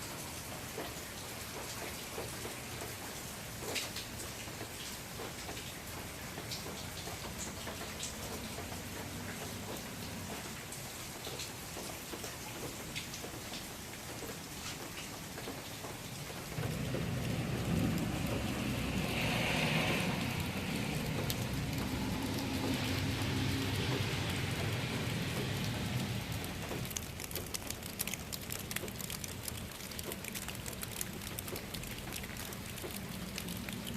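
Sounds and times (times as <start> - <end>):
sharp drips: 0.0 - 33.9
steady rain falling: 0.0 - 33.9
low rumble: 16.6 - 26.6.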